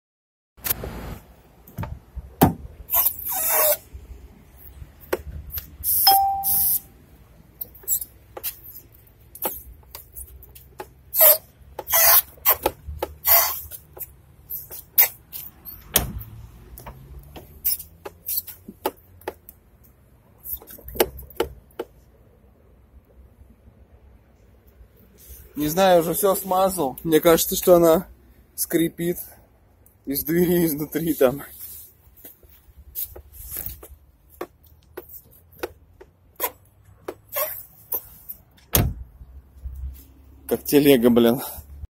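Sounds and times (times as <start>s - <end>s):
door creaking and squeaking: 11.2s - 13.7s, 15.0s - 16.3s.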